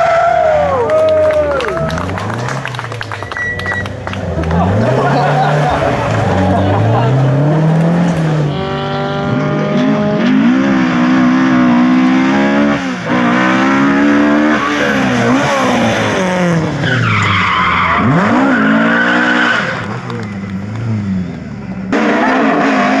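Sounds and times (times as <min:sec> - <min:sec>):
rally car engine revving: 0:00.0 - 0:23.0
tyres squealing: 0:01.3 - 0:09.7, 0:13.7 - 0:22.6.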